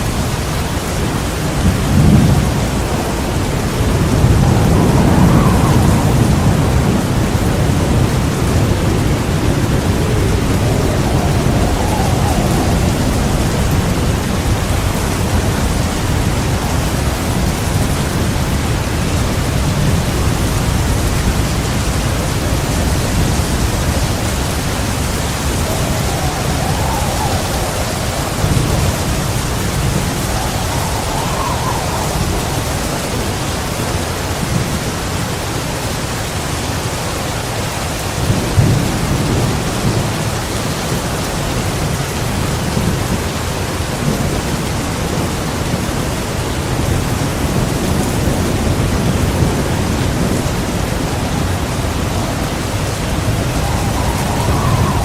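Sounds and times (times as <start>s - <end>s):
rolling thunder: 0.0s - 35.6s, 38.2s - 55.0s
heavy rain pouring: 0.0s - 55.0s.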